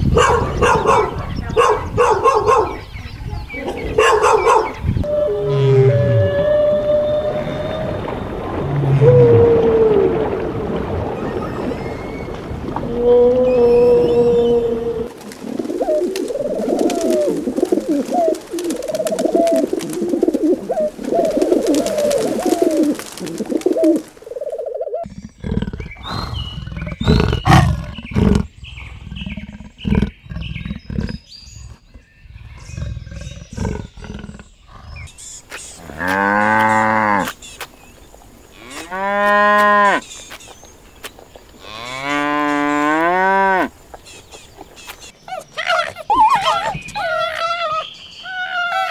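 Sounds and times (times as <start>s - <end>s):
humpback whale song: 5.0s - 15.1s
leopard growling and snarling: 25.0s - 35.1s.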